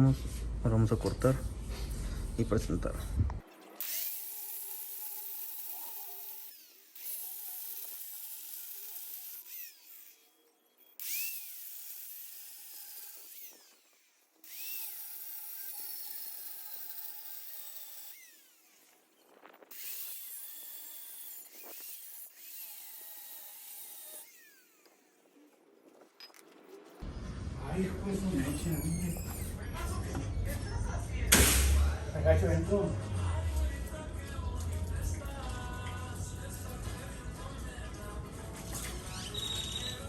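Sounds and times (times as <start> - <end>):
power tool cutting steel pipe: 3.6 - 25.4.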